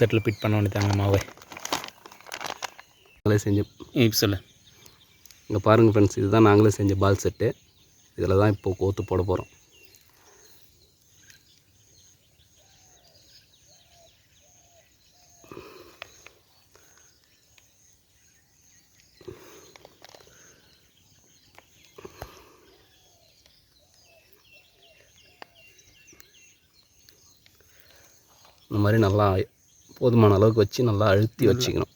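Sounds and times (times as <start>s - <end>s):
faint high bird chirps: 0.0s - 31.9s
handling knocks and rustles: 0.4s - 2.8s.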